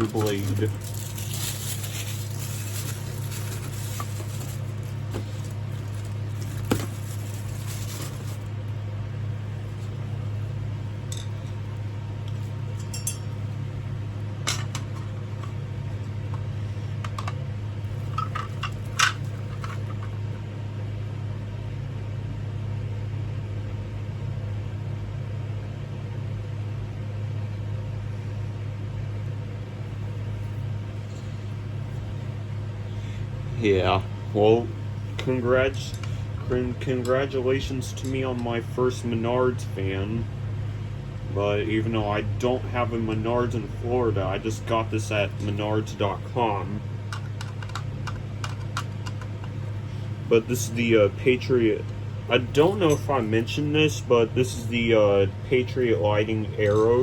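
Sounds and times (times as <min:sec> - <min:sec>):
fan parts clicking and clinking: 0:00.0 - 0:08.5, 0:11.0 - 0:13.5, 0:14.4 - 0:20.3, 0:34.4 - 0:40.0, 0:41.6 - 0:57.0
low steady hum: 0:00.0 - 0:57.0.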